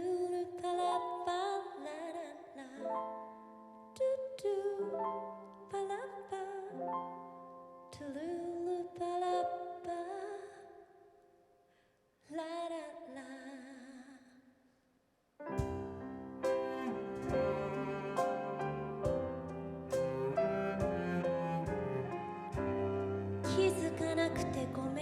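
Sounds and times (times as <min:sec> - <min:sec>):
soft piano notes: 0:15.5 - 0:25.0
cello: 0:15.6 - 0:25.0.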